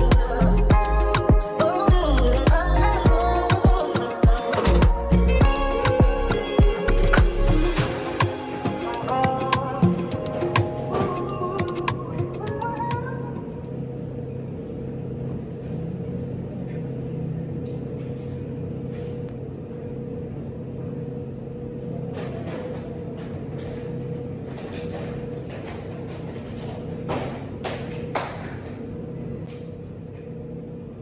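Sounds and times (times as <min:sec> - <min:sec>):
steady motor hum: 0:00.0 - 0:10.7.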